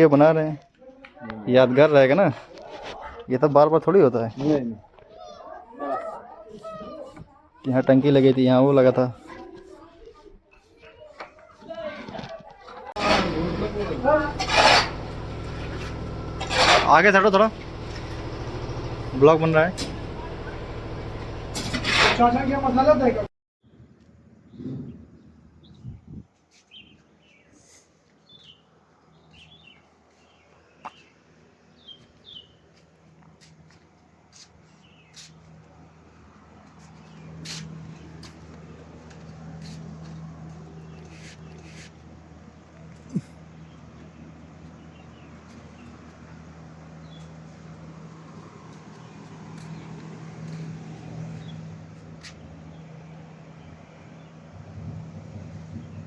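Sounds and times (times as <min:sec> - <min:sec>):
low engine hum: 0:13.0 - 0:23.3, 0:34.1 - 0:56.0
small birds chirping: 0:24.4 - 0:33.0, 0:34.6 - 0:35.6, 0:42.8 - 0:47.8, 0:48.7 - 0:54.4.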